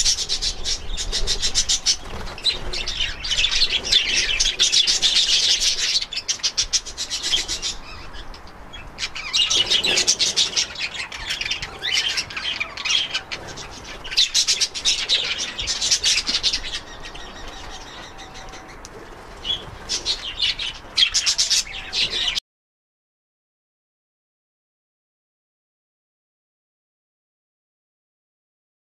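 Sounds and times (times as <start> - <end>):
budgerigars chirping and chattering: 0.0 - 22.4.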